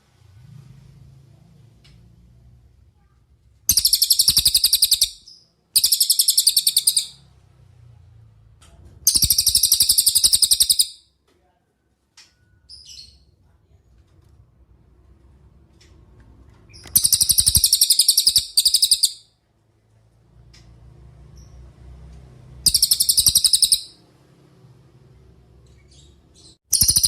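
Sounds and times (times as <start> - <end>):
bird singing high trills: 3.7 - 7.2, 9.1 - 11.0, 16.9 - 19.2, 22.6 - 24.0, 26.4 - 27.0.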